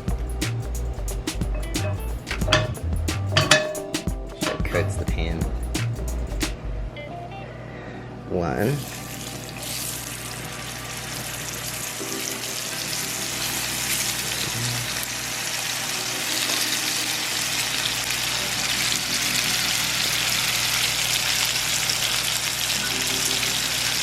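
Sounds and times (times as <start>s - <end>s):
chicken sizzling in a pan: 8.8s - 24.0s.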